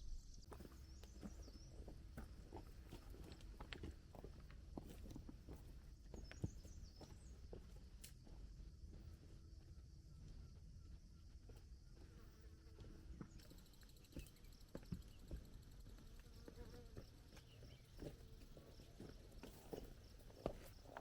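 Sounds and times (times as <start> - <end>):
footsteps crunching on trail: 0.5 - 9.5, 11.4 - 21.0
faint insect buzzing: 11.9 - 18.4.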